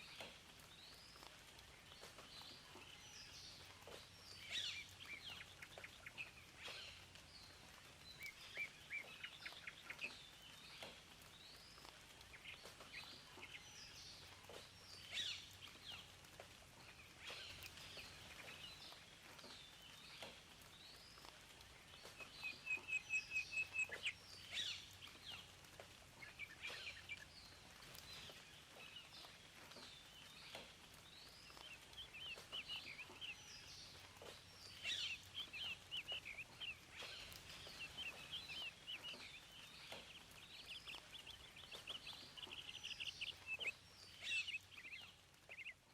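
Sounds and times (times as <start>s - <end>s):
songbirds chirping and singing: 0.0s - 45.9s.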